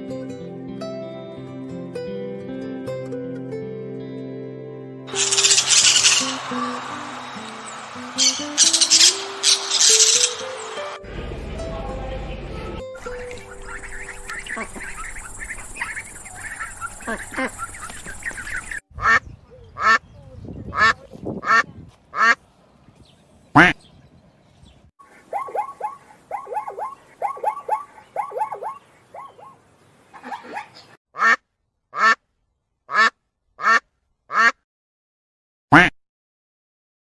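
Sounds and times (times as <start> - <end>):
goose honking: 5.1 - 10.4, 13.0 - 19.2
loud animal calls: 5.1 - 10.6, 13.4 - 19.2
ducklings calling: 5.1 - 11.0, 13.0 - 22.4, 23.5 - 23.9, 25.1 - 31.4, 32.9 - 34.5.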